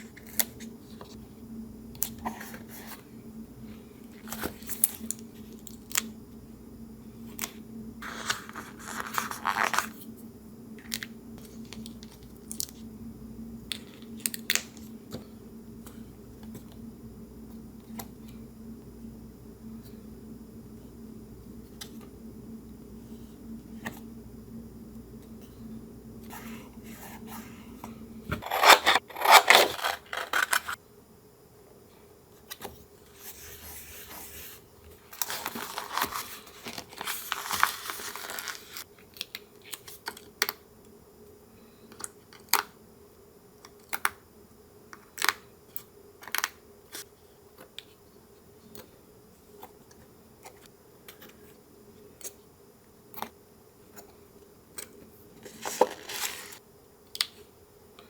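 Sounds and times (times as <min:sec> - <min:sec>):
paper rustling and tearing: 0:08.0 - 0:09.9, 0:28.4 - 0:30.8, 0:35.2 - 0:38.8, 0:55.5 - 0:56.6.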